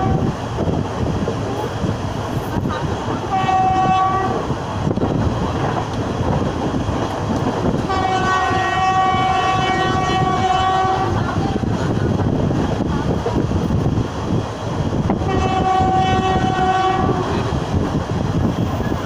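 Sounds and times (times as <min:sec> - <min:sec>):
train horn blasts: 0:00.0 - 0:00.3, 0:03.3 - 0:04.5, 0:07.8 - 0:11.2, 0:15.2 - 0:17.5
train wheels on rails: 0:00.0 - 0:19.0.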